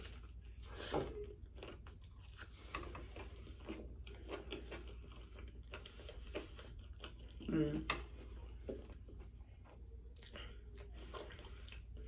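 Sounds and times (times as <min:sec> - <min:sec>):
person chewing with mouth clicks: 0:00.8 - 0:09.0.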